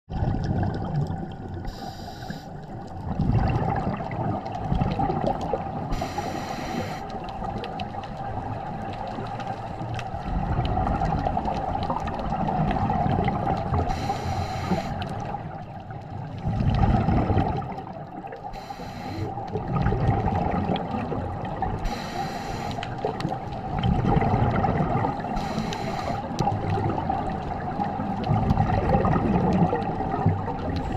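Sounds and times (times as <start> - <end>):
exhaled bubbles gurgling: 0.1 - 30.9
underwater wash: 0.1 - 30.9
regulator inhale hiss: 1.7 - 2.6, 5.9 - 7.1, 13.9 - 15.0, 18.6 - 19.3, 21.8 - 22.8, 25.4 - 26.3.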